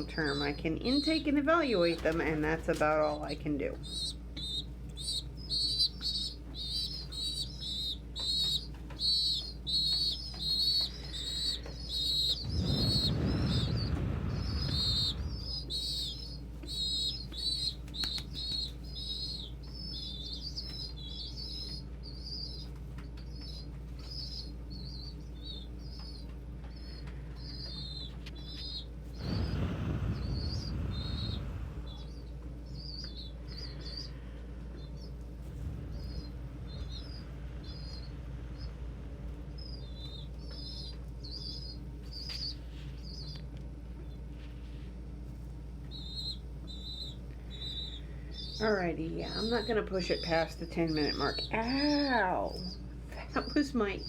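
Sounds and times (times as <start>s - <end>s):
fan humming: 0.0s - 54.0s
pigeon squabs squeaking: 3.8s - 34.2s, 45.8s - 52.8s
wing flapping: 5.7s - 19.1s, 29.0s - 32.6s, 35.1s - 40.2s.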